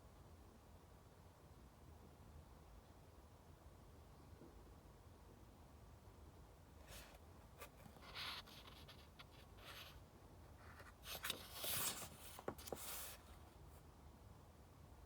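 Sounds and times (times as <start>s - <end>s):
book pages rustling: 6.9s - 13.7s.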